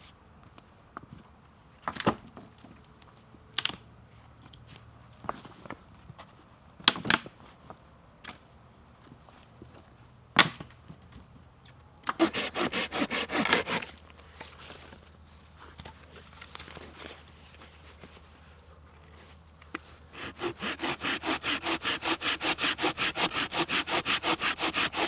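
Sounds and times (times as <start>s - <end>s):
rasping strokes on wood: 12.2s - 14.0s, 20.2s - 25.0s.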